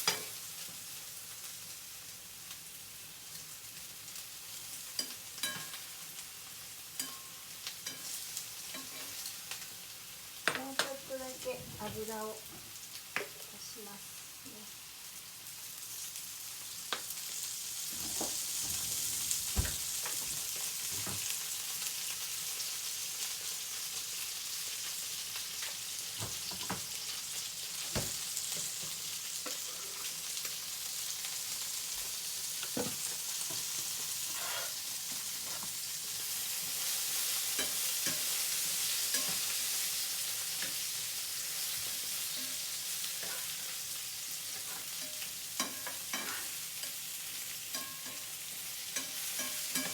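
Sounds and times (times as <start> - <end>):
eggplant frying in oil: 0.0 - 49.9.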